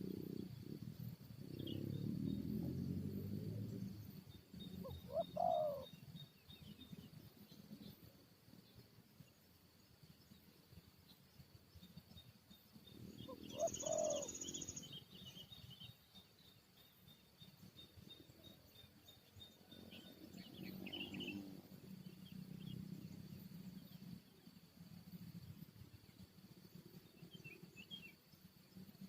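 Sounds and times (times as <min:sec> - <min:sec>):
high insect drone: 0:00.0 - 0:29.0
small birds chirping: 0:00.0 - 0:29.0
doves calling: 0:04.6 - 0:06.3, 0:13.0 - 0:15.5.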